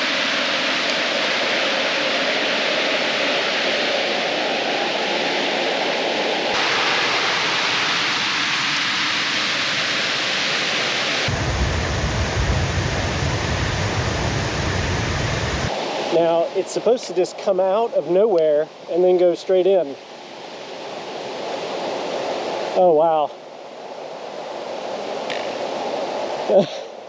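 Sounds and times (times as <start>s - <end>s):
waterfall roaring: 6.6s - 9.6s, 11.3s - 15.7s
deep low rumble: 11.3s - 15.7s.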